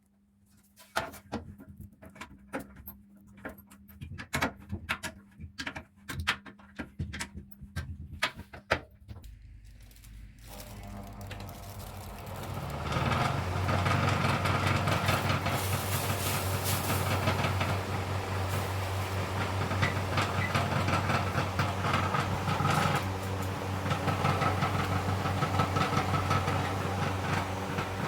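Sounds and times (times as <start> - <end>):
electric fan motor running: 9.3 - 28.0.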